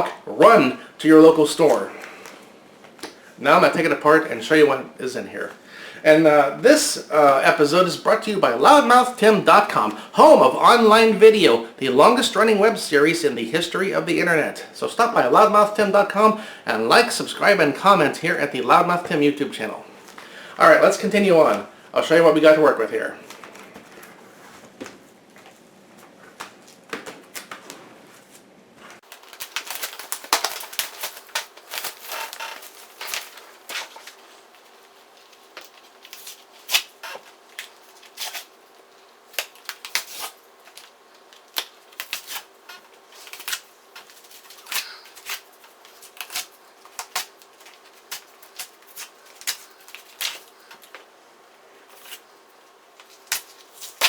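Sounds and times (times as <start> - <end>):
cardboard filter crackling and tearing: 29.0 - 38.6, 39.3 - 50.9.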